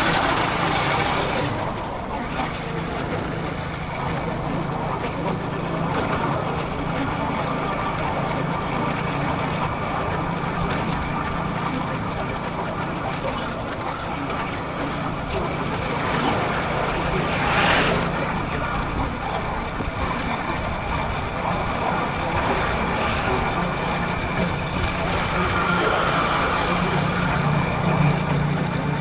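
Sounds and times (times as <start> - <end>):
motorcycle engine hum: 0.0 - 29.0
wind rushing over microphone: 14.1 - 29.0
whoosh: 15.9 - 19.1.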